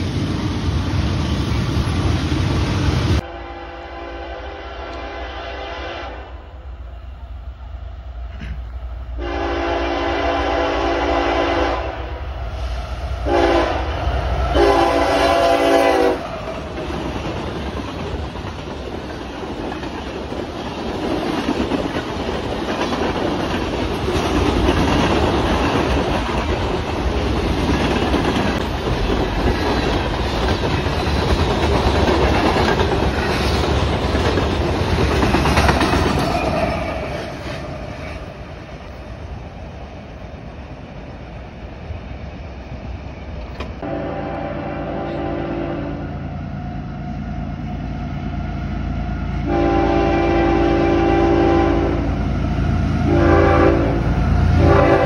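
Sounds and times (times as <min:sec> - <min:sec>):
locomotive air horn blasts: 0:03.2 - 0:06.4, 0:09.2 - 0:12.1, 0:13.2 - 0:16.3, 0:43.8 - 0:46.2, 0:49.4 - 0:52.2, 0:52.9 - 0:55.0
freight train wheel clatter: 0:15.8 - 0:40.2.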